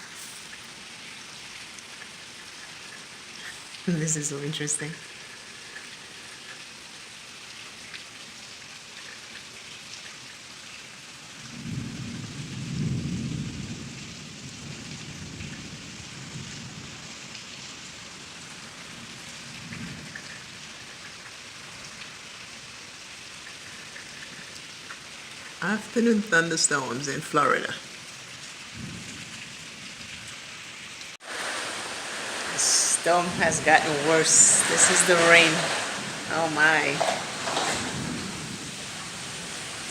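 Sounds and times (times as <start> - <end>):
heavy rain falling: 0.0 - 39.9
rolling thunder rumble: 11.5 - 17.0, 28.7 - 29.8, 31.3 - 39.9.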